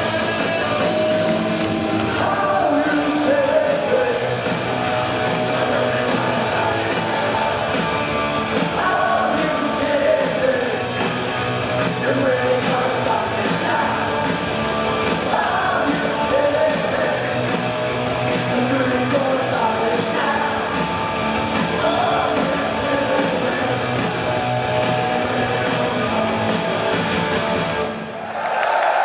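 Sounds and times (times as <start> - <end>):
man singing lead vocal: 0.0 - 7.8, 8.6 - 11.2, 11.8 - 14.4, 15.0 - 20.9, 21.5 - 24.3
punk rock band playing live: 0.0 - 28.0.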